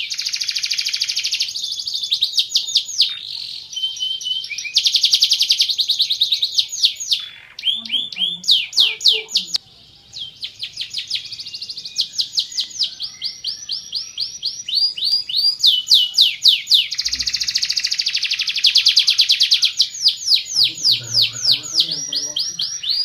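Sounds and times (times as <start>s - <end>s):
canary singing: 0.0s - 23.0s.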